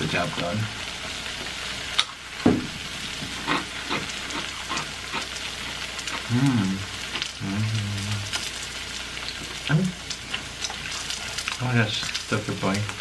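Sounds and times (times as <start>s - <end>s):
cheese sizzling in a frying pan: 0.0s - 13.0s
person humming: 6.2s - 8.3s.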